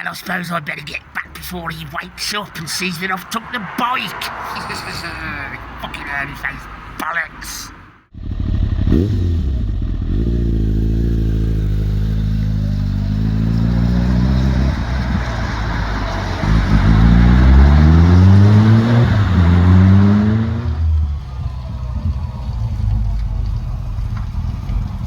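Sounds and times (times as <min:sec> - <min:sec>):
motorcycle engine accelerating: 0:08.1 - 0:25.0.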